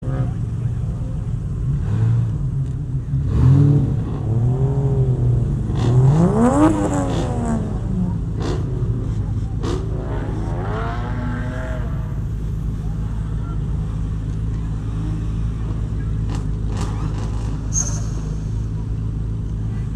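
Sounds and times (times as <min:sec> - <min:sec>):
truck engine revving: 0:03.1 - 0:19.1.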